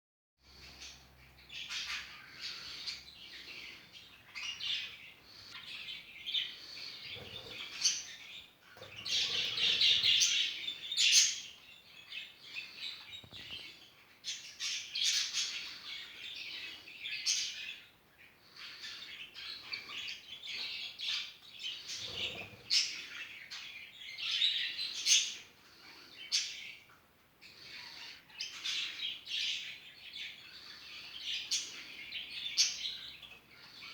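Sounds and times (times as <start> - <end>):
budgerigars chattering: 6.3 - 11.6.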